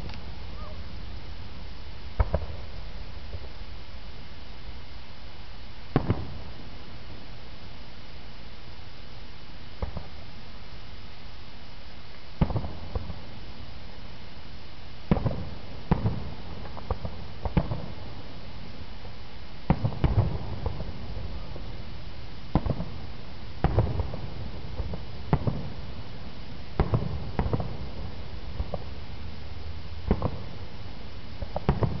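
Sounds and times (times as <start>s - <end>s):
firework shells booming: 2.2s - 3.5s.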